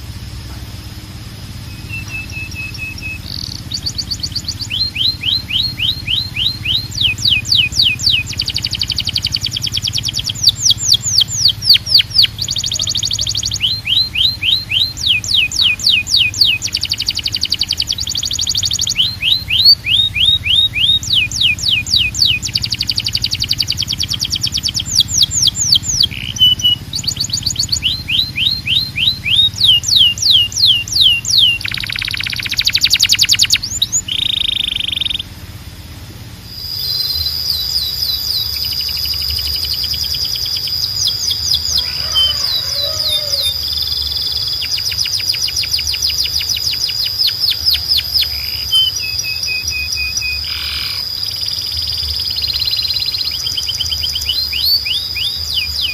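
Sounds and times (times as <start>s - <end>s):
canary singing trills: 0.0s - 55.9s.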